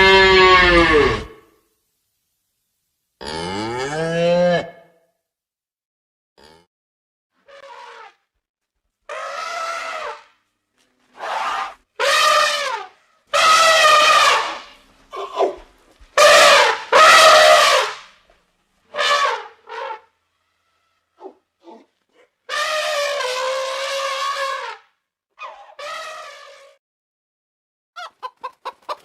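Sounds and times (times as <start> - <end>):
elephant trumpeting: 0.0 - 1.4, 7.4 - 8.2, 9.1 - 10.4, 11.0 - 15.6, 16.2 - 18.2, 18.9 - 26.8.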